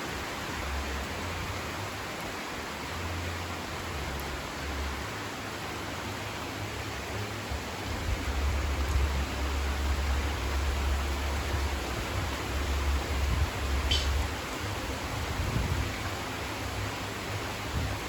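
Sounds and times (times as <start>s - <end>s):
heavy rain pouring: 0.0s - 18.0s
low rumble: 7.9s - 16.0s.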